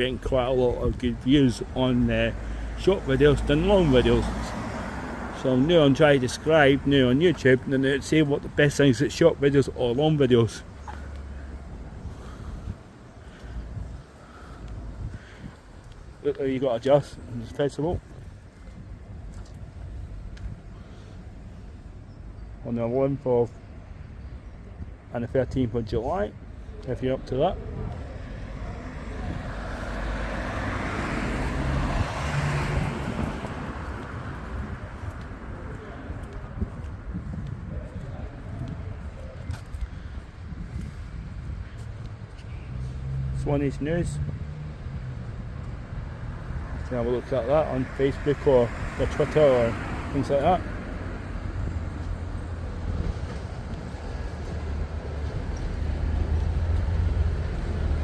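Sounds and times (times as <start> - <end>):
vehicle driving past: 28.0 - 36.3, 42.6 - 58.0
train rumbling: 52.2 - 57.3.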